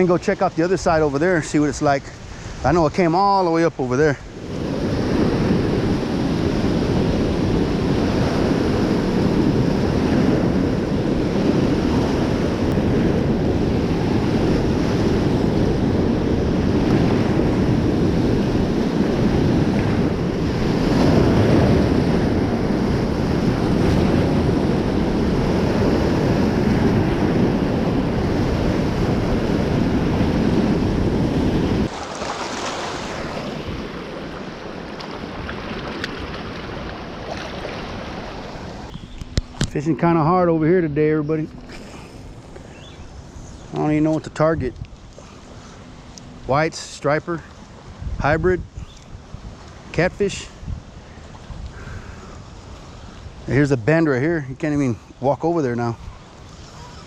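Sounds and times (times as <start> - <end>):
wind buffeting microphone: 0.0 - 57.0
fast-flowing river water: 31.8 - 40.4.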